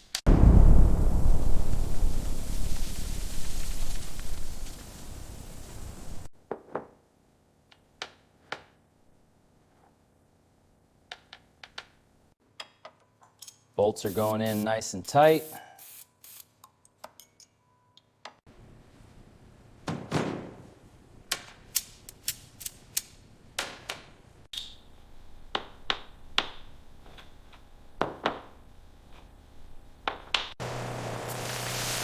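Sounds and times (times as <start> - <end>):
steady hiss: 0.3 - 6.3, 30.6 - 32.0.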